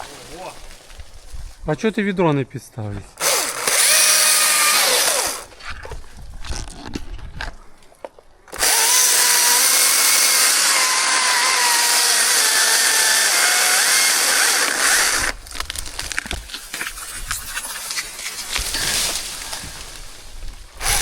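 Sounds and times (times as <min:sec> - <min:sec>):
chainsaw running at full throttle: 0:03.2 - 0:05.5, 0:08.6 - 0:15.4, 0:20.8 - 0:21.0.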